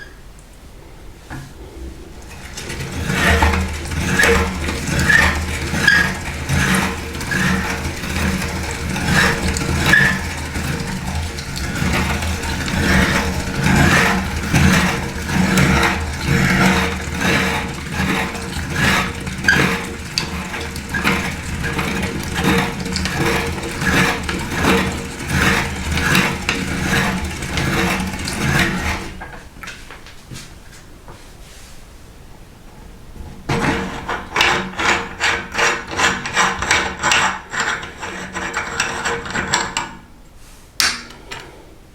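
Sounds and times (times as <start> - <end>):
meat grinder motor humming: 2.2 - 29.4
food crunching in grinder: 2.3 - 29.8.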